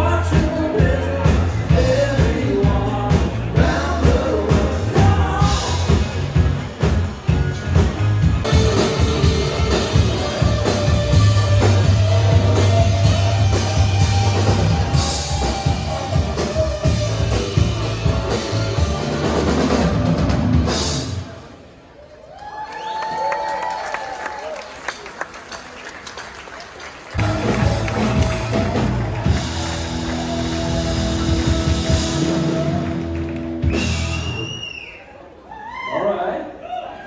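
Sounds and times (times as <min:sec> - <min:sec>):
person singing: 0:00.0 - 0:06.2, 0:27.2 - 0:33.4
drum kit beat: 0:00.0 - 0:21.2, 0:27.2 - 0:34.5
bass guitar: 0:00.0 - 0:21.3, 0:27.2 - 0:34.6
electric guitar: 0:03.2 - 0:20.9, 0:27.2 - 0:34.4.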